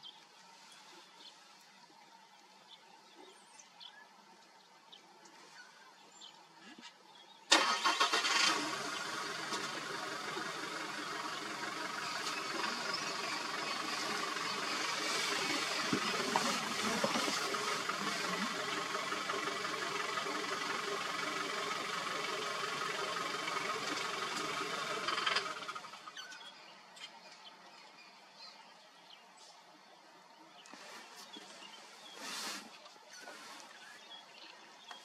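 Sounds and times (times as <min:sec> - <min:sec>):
vehicle engine starting and running: 0:07.5 - 0:26.4.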